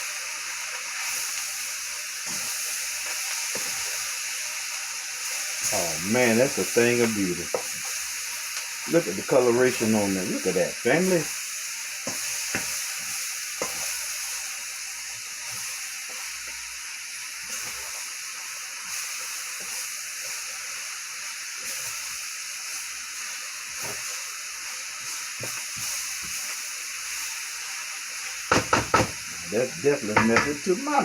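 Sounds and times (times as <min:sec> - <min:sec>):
food sizzling in a pan: 0:00.0 - 0:31.0
utensil tapping and scraping: 0:30.1 - 0:30.6.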